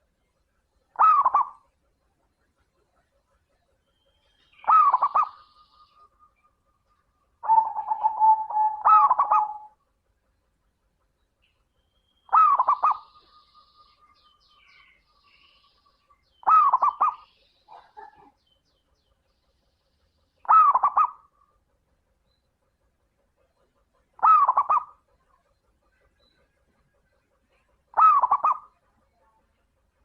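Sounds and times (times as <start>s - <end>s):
dove rolling coos: 1.0s - 1.6s, 4.6s - 5.4s, 7.4s - 9.8s, 12.3s - 13.1s, 16.4s - 17.2s, 20.4s - 21.3s, 24.2s - 25.0s, 27.9s - 28.8s.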